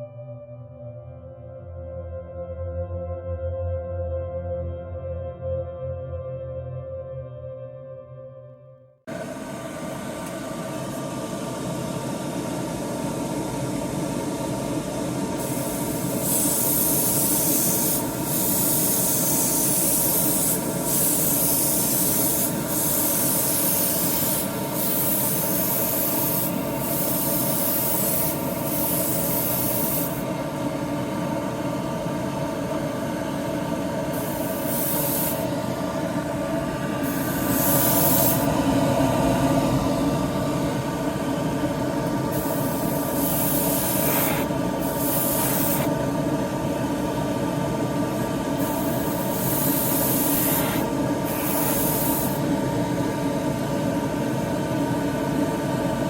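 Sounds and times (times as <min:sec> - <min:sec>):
steady motor hum: 0:09.1 - 0:56.0
airbrush spraying air: 0:15.4 - 0:30.9, 0:34.1 - 0:38.6, 0:42.3 - 0:46.1, 0:48.6 - 0:52.6.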